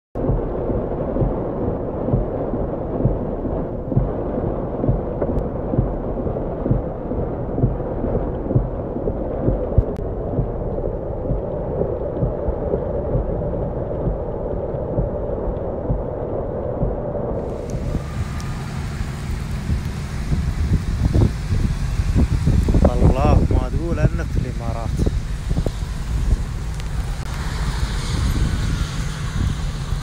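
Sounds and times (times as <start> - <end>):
heavy rain on car roof: 17.4 - 30.0.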